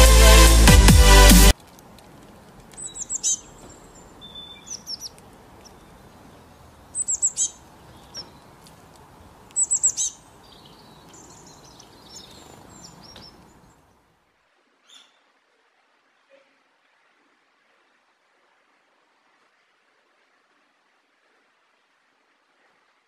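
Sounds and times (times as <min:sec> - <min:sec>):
songbird chirping: 0:02.6 - 0:14.0, 0:14.8 - 0:15.4.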